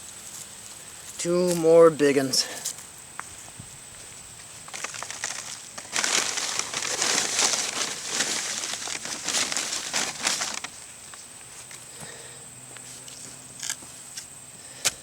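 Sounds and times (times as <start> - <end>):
soil crunching and rustling: 0.0 - 15.0.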